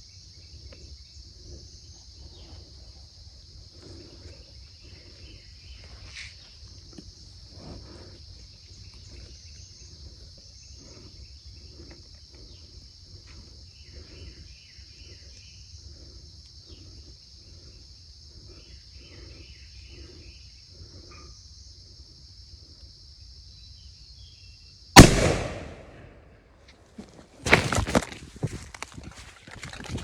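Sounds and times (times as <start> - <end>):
insects chorus: 0.0 - 30.0
soft low pulses: 25.0 - 26.3.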